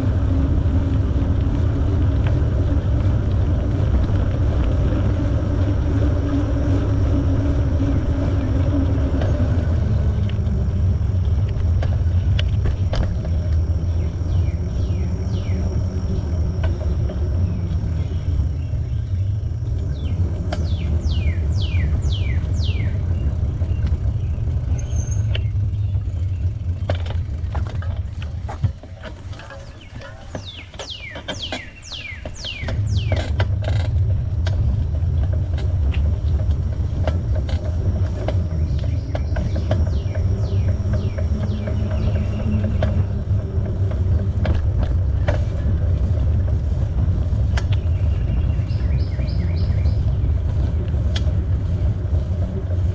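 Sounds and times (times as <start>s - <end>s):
bicycle riding rumble: 0.0s - 52.9s
bicycle ticking: 0.0s - 52.9s
bird whistling: 20.0s - 23.0s, 30.4s - 33.2s.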